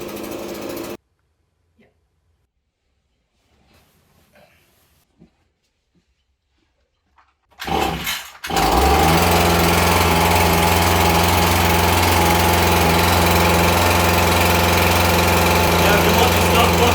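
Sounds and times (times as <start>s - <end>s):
two-stroke engine running: 0.0s - 1.0s, 7.6s - 16.9s.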